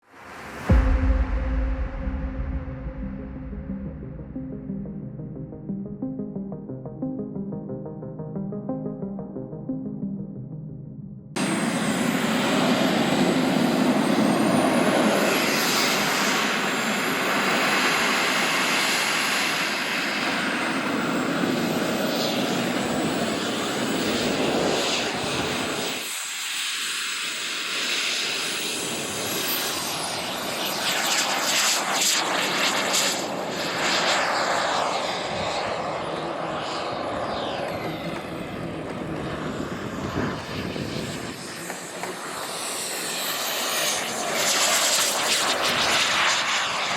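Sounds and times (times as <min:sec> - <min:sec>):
model jet turbine roaring: 0:11.4 - 0:46.9.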